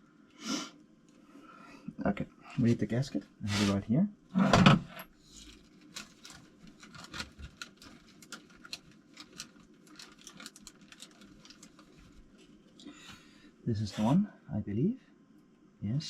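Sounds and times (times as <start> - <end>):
low room hum: 0.0 - 16.0
small parts clicking and rustling: 5.3 - 12.9.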